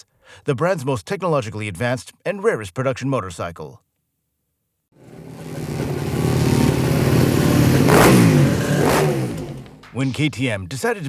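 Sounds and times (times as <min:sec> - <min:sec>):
motorcycle engine revving: 0:05.0 - 0:10.0.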